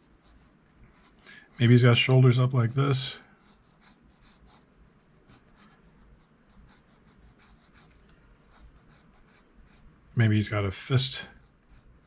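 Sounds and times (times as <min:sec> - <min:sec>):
pencil sketching on paper: 0:00.0 - 0:02.1, 0:03.4 - 0:10.0, 0:11.3 - 0:12.0.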